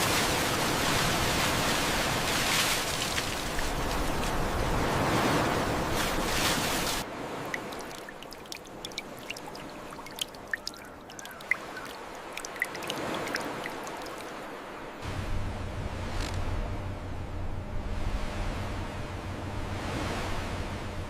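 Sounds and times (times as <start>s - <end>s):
rushing water: 0.0s - 16.4s.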